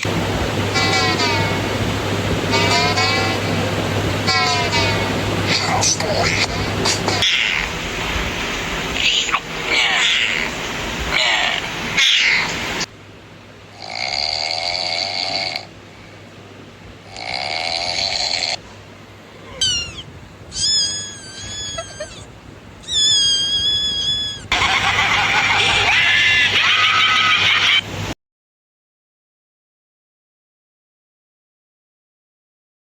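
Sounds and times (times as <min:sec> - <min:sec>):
cat-like cries: 0:08.9 - 0:12.6, 0:19.4 - 0:24.6
snore-like sound: 0:13.8 - 0:15.7, 0:17.1 - 0:18.6.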